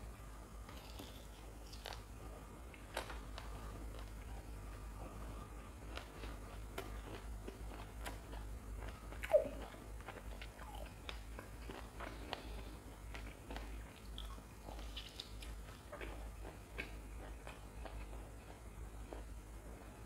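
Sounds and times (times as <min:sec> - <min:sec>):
chewing crisp fried food: 0:00.5 - 0:20.0
wet mouth sounds: 0:09.2 - 0:09.8.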